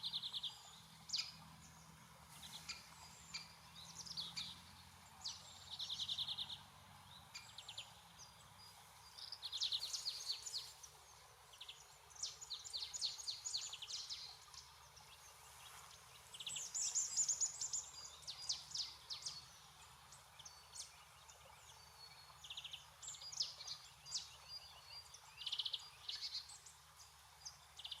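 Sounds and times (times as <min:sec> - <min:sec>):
songbirds chirping: 0:00.0 - 0:28.0.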